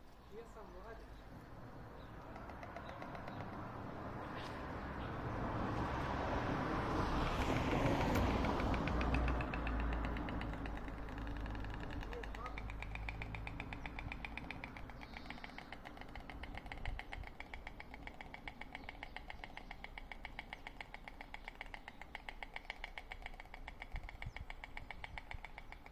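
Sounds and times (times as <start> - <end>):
storks clattering bills: 7.8 - 25.9.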